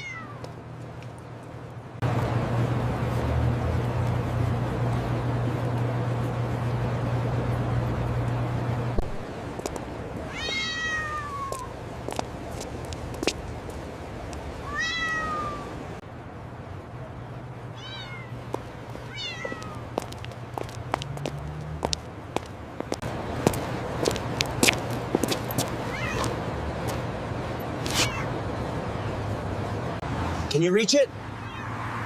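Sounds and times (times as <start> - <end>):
kitten meowing: 0.0 - 0.4, 10.3 - 11.7, 14.6 - 15.7, 17.8 - 18.3, 19.1 - 19.8, 25.9 - 26.3, 27.9 - 28.3, 31.4 - 31.7.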